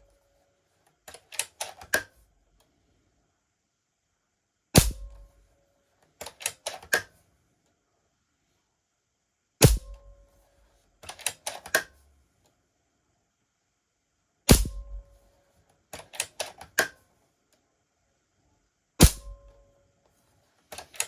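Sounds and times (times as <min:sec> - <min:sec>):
metallic clicks of rifle action: 0:01.1 - 0:02.2, 0:06.2 - 0:07.2, 0:11.0 - 0:12.0, 0:15.9 - 0:17.0, 0:20.7 - 0:21.0
air rifle shot crack: 0:04.8 - 0:05.2, 0:14.5 - 0:15.0, 0:19.0 - 0:19.3.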